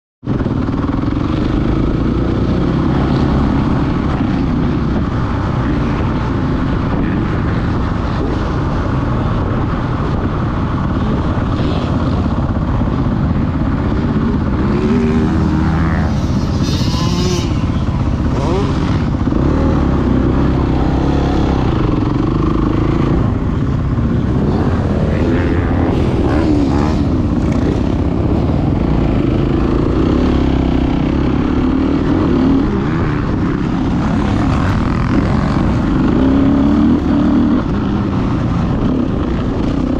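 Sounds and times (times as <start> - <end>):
heavy low rumble: 0.2 - 39.9
dirt bike engine revving: 0.3 - 39.9.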